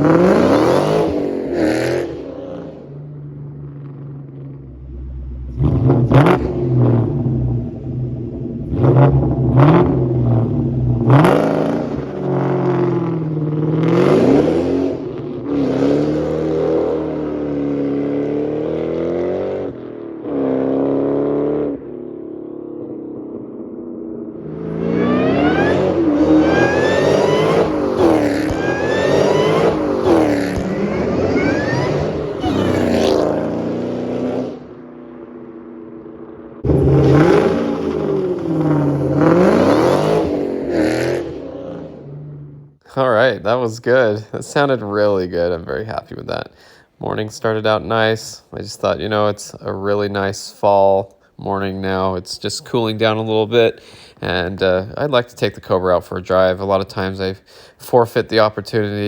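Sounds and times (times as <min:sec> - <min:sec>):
supercharger whine: 0:00.0 - 0:20.8, 0:21.6 - 0:42.8
car engine revving: 0:00.0 - 0:45.6
engine note climbing with gear changes: 0:00.0 - 0:59.0.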